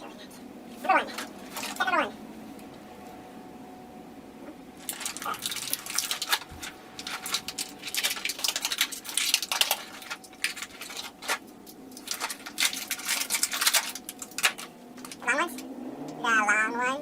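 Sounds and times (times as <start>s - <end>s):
objects being handled: 0.7s - 1.9s, 4.8s - 15.7s.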